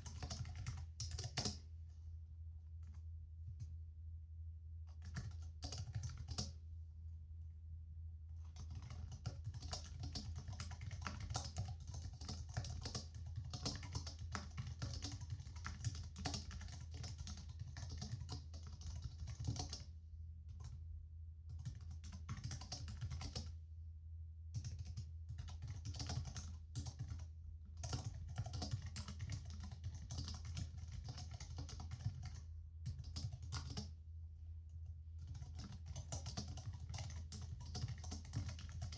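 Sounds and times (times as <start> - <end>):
computer keyboard typing: 0.0 - 1.7, 4.9 - 6.6, 8.5 - 19.9, 21.5 - 23.5, 24.6 - 34.0, 35.2 - 38.9.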